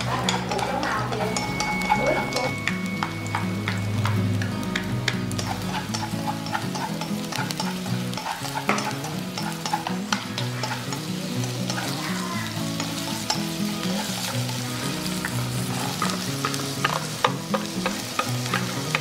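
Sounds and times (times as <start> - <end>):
chopsticks clicking and scraping pan: 0.0 - 19.0
onion and garlic sizzling in oil: 0.0 - 19.0.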